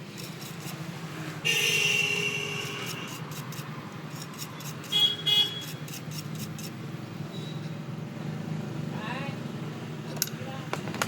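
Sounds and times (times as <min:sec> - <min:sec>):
vehicle horn honking: 0:01.4 - 0:03.2, 0:04.8 - 0:05.8.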